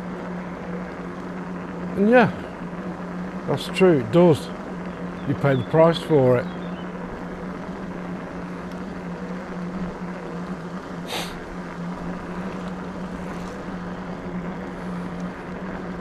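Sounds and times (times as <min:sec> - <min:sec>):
electric bike motor humming: 0:00.0 - 0:16.0
short hiss: 0:11.1 - 0:11.4.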